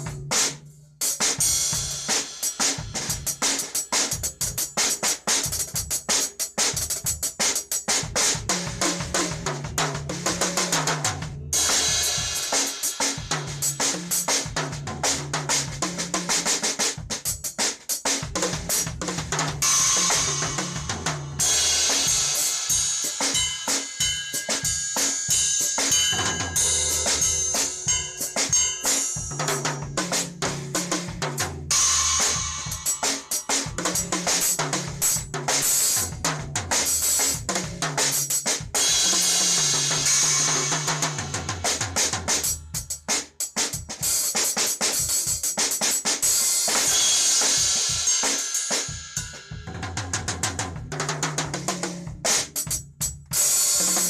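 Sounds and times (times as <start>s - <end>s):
bass drum and snare strokes: 0.0s - 54.0s
cymbal crashes: 19.6s - 30.0s, 31.7s - 34.0s.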